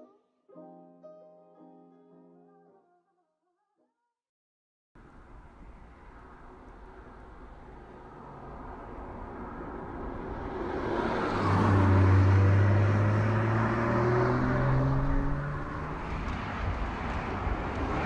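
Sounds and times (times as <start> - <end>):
car engine accelerating: 5.0 - 17.5.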